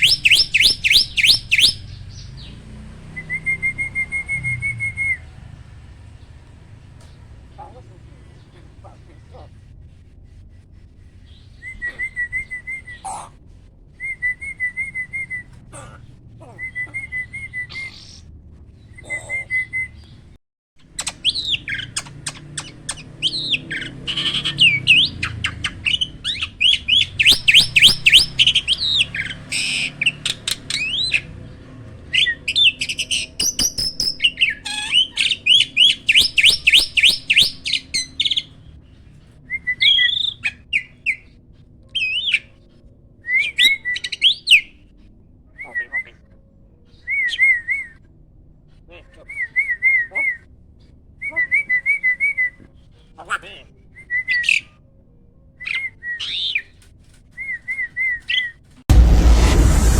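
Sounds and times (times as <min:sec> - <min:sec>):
sharp bird clicks: 0:00.0 - 0:01.8, 0:20.9 - 0:23.4, 0:27.2 - 0:28.8, 0:33.4 - 0:34.5
starling whistles: 0:00.0 - 0:02.5, 0:03.1 - 0:05.3, 0:21.0 - 0:31.3, 0:32.2 - 0:38.6
fast chattering bird notes: 0:33.2 - 0:37.5.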